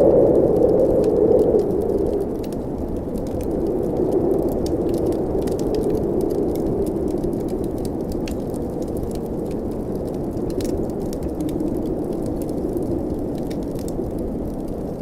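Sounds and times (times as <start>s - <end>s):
blizzard wind rushing: 0.0s - 15.0s
wood fire crackling: 0.0s - 15.0s.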